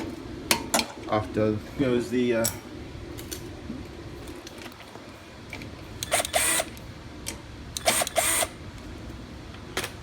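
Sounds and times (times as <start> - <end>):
power driver whirring: 6.0 - 6.9, 7.7 - 8.6.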